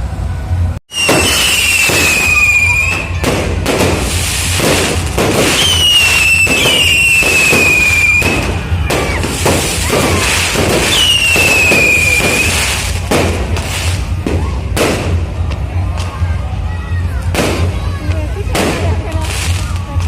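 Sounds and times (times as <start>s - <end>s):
firework whistles: 0.9s - 15.1s
firework pops and crackles: 0.9s - 16.2s, 17.3s - 20.0s.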